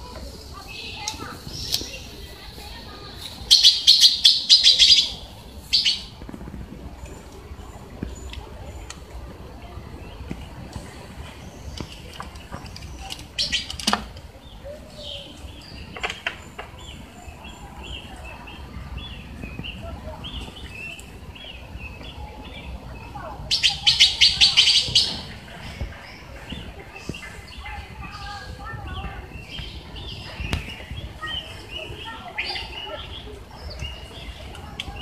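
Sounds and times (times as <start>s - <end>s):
small birds chirping: 0.0s - 35.0s
rattling bird calls: 3.2s - 6.1s, 11.5s - 14.2s, 23.5s - 34.8s.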